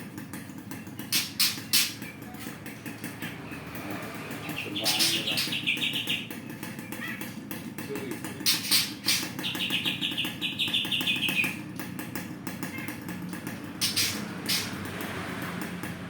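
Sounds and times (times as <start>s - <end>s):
songbird chirping: 0.6s - 7.2s, 8.4s - 11.6s.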